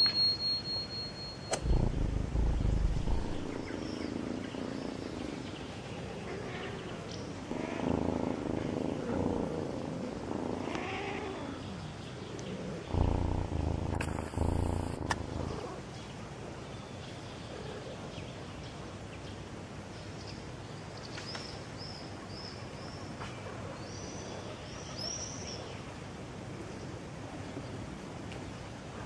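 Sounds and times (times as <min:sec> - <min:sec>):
outdoor background noise: 0:00.0 - 0:29.0
low sound: 0:01.5 - 0:03.9, 0:12.9 - 0:15.7
small bird chirping: 0:01.5 - 0:04.8, 0:12.9 - 0:15.8.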